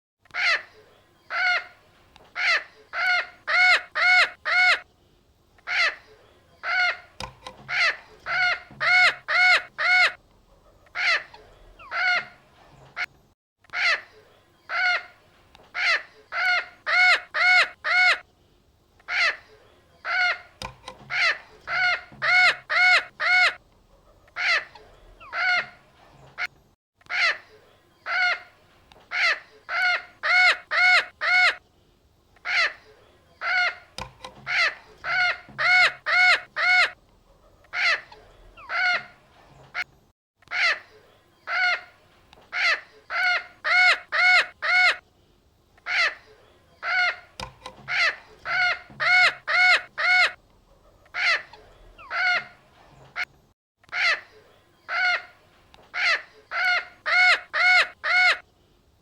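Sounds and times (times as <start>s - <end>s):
parrot squawking: 2.4s - 4.8s, 5.6s - 6.0s, 6.6s - 10.2s, 10.8s - 12.4s, 13.7s - 14.1s, 15.8s - 18.2s, 20.0s - 23.6s, 24.3s - 25.8s, 27.1s - 28.5s, 29.1s - 31.6s, 32.4s - 32.8s, 33.4s - 37.0s, 37.6s - 39.2s, 40.5s - 40.9s, 41.5s - 41.9s, 42.5s - 45.0s, 45.8s - 46.2s, 46.8s - 50.4s, 51.0s - 52.6s, 53.9s - 54.3s, 54.9s - 58.4s.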